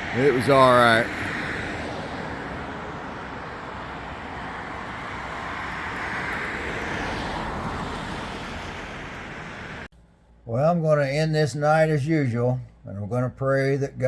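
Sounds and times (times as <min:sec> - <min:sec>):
vehicle passing: 0:00.0 - 0:09.9
road traffic noise: 0:00.0 - 0:10.5.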